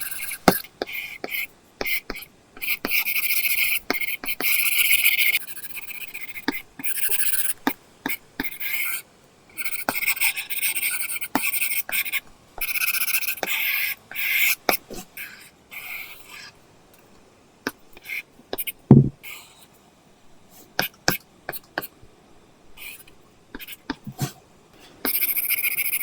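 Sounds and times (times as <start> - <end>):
stylus scratching on screen: 0.0 - 9.0, 9.6 - 16.6, 25.1 - 26.0
stylus tip tapping: 18.6 - 19.2
low thump: 18.9 - 19.2.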